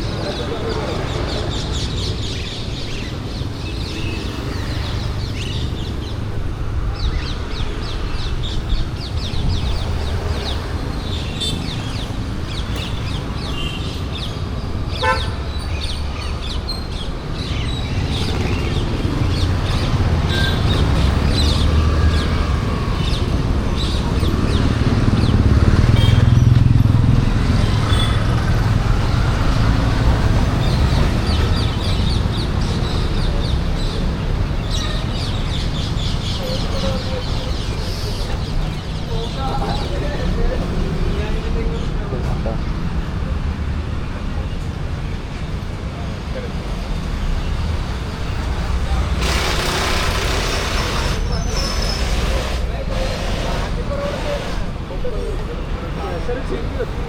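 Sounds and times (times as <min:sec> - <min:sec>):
traffic rumble: 0:00.0 - 0:57.0
vehicle horn toot: 0:15.0 - 0:15.4, 0:25.9 - 0:26.4.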